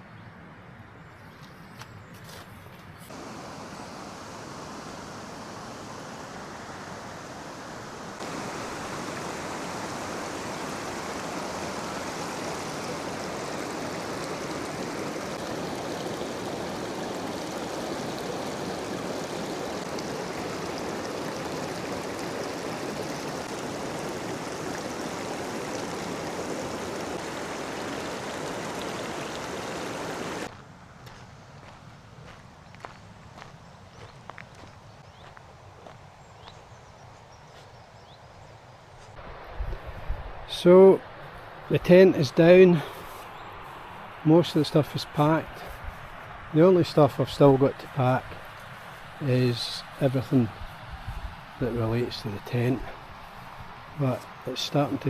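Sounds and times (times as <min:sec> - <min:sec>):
river water rushing: 0:03.1 - 0:30.5, 0:41.2 - 0:55.0.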